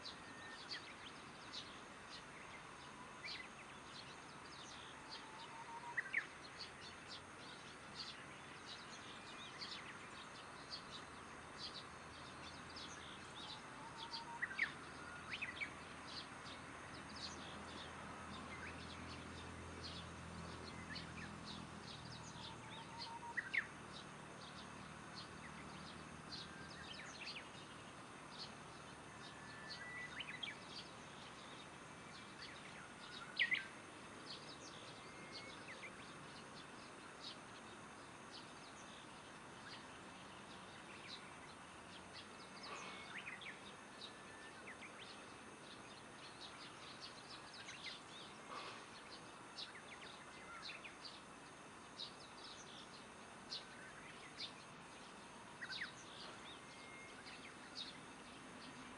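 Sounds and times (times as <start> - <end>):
evening insects: 0.0 - 58.9
small birds chirping: 0.0 - 58.9.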